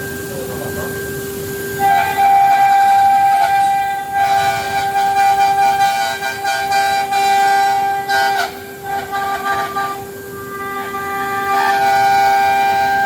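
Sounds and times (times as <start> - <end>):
cnc router spindle whining: 0.0 - 13.0.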